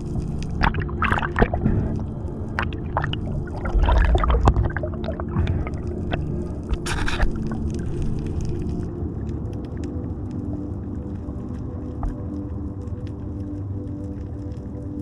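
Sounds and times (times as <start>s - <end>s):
water gurgling and splashing: 0.0s - 9.0s.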